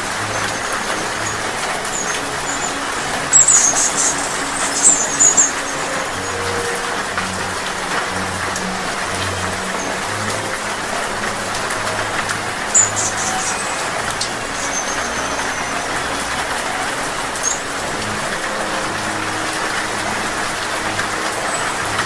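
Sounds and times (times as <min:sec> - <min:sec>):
rain pattering on leaves: 0:00.0 - 0:22.0
hummingbird chips and squeaks: 0:01.9 - 0:06.9, 0:12.7 - 0:16.0.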